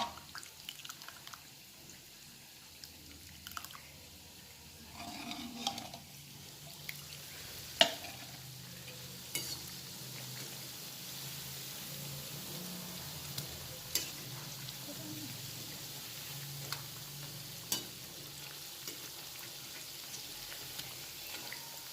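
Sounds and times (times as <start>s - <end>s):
dough frying in hot oil: 0.0s - 21.9s.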